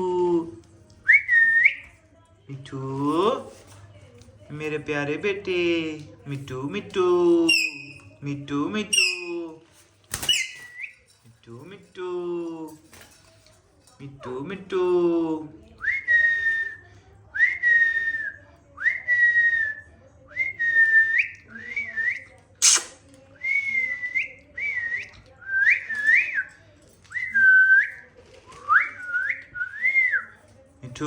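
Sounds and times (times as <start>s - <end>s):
sharp click: 22.6s - 23.0s
short clear whistles: 22.6s - 23.8s.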